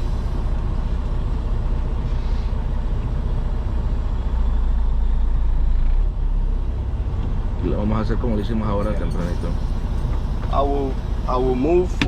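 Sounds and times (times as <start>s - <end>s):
diesel engine rumble from cab: 0.0s - 12.0s.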